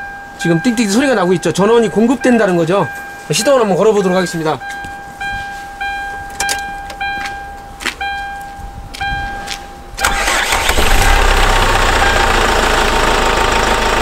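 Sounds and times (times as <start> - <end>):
dashboard warning chime dinging: 0.0 - 10.3
ignition key clicking: 6.3 - 7.0
engine cranking and running: 10.0 - 14.0.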